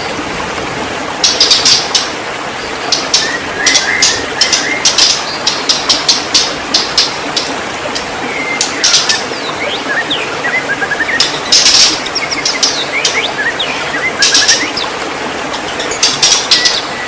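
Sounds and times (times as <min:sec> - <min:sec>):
bird whistling song: 0:03.1 - 0:05.8, 0:08.3 - 0:14.9, 0:15.8 - 0:17.0.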